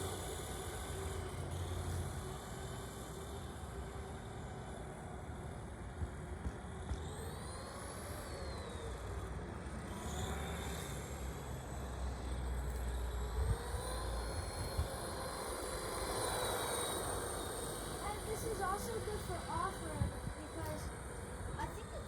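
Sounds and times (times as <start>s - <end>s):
toy car motor whining: 0.0s - 22.0s.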